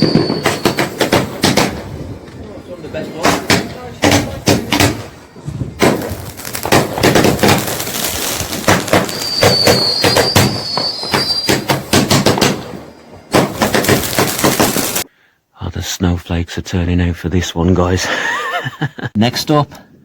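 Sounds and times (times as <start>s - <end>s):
firework whistle: 0.0s - 1.8s, 4.9s - 15.1s
fireworks bangs and crackling: 0.0s - 15.1s.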